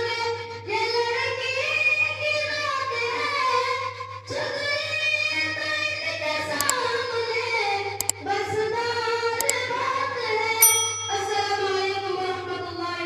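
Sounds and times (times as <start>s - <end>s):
short high ding: 10.6s - 11.6s.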